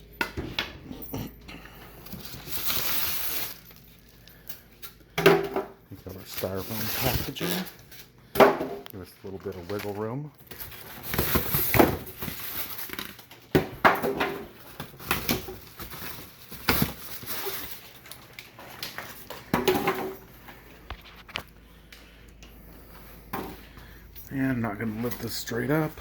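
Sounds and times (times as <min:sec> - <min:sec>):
styrofoam squeaking and scraping: 0:02.2 - 0:03.7, 0:15.4 - 0:18.1.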